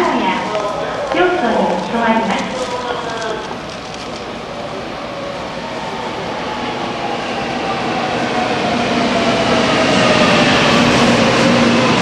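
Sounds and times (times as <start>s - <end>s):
train wheel and rail noise: 0.0s - 12.0s.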